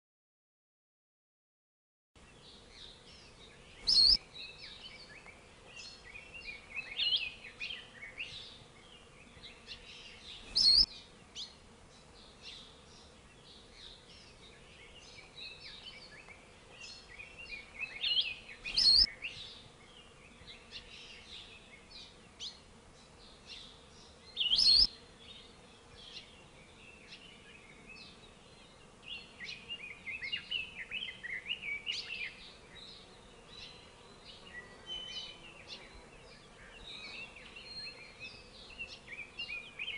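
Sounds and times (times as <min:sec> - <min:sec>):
birds chirping: 0:02.2 - 0:39.9.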